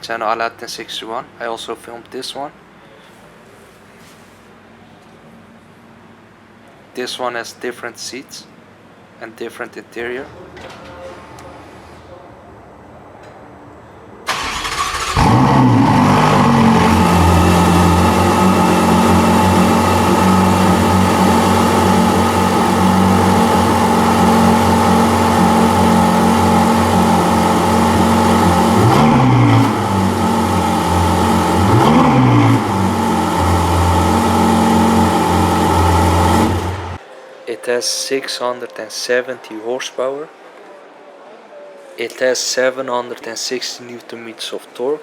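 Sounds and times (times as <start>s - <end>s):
car engine starting and idling: 14.3s - 37.0s
engine revving: 14.3s - 37.0s.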